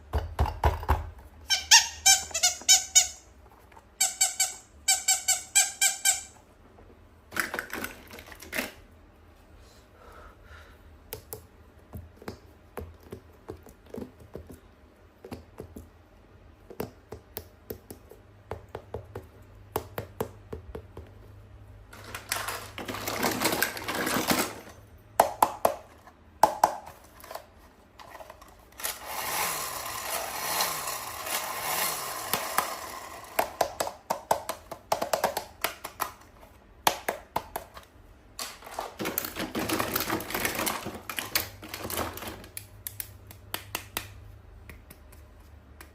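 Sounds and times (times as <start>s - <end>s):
packaging rustling: 38.4s - 42.6s.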